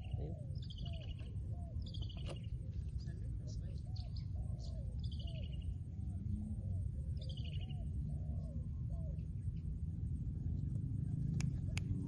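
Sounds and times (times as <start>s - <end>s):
dove cooing: 0.0s - 2.8s, 3.6s - 9.5s
steady low rumble: 0.0s - 12.0s.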